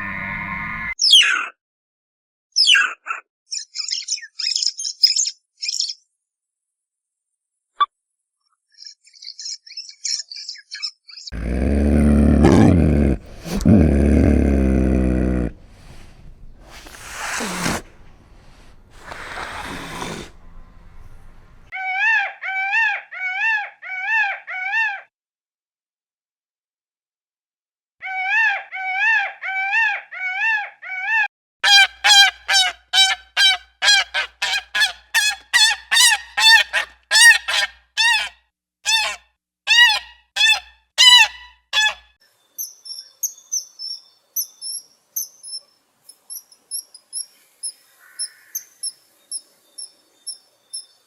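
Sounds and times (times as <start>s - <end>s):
goose honking: 31.6s - 38.3s.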